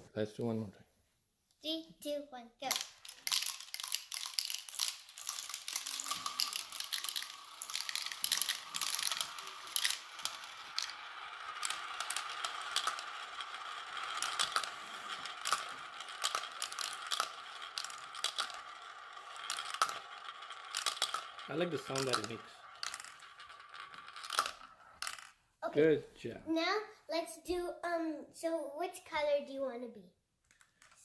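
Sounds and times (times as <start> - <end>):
marbles clicking and rattling: 2.6 - 25.4
marbles rolling on plastic track: 2.6 - 25.4.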